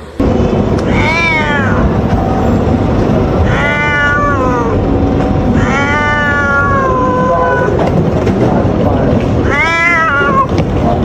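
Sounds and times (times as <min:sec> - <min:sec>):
low rumbling background noise: 0:00.0 - 0:11.0
cat meowing: 0:00.8 - 0:02.0, 0:03.4 - 0:04.8, 0:05.5 - 0:07.8, 0:09.4 - 0:10.6.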